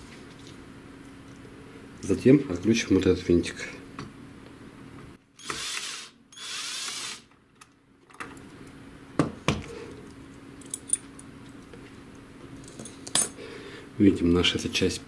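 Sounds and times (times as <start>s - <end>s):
screwdriver whirring: 5.4s - 7.3s.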